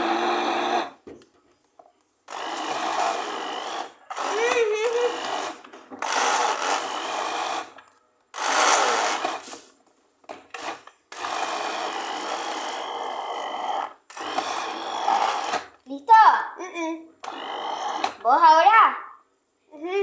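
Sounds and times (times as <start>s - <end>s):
blender motor running: 0.0s - 1.0s, 2.3s - 9.7s, 10.5s - 15.8s, 17.2s - 18.2s.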